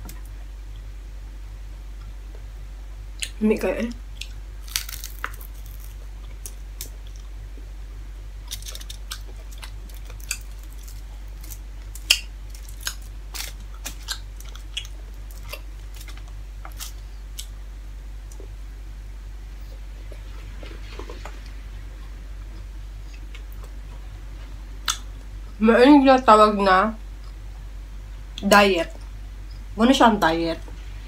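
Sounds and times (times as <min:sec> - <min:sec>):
steady low hum: 0:00.0 - 0:31.0
crispy food crunching: 0:04.1 - 0:07.3, 0:08.4 - 0:17.6.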